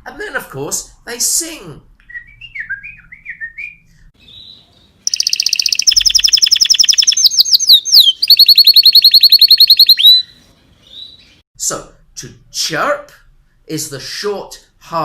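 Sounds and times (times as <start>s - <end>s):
songbird trilling: 4.2s - 11.3s.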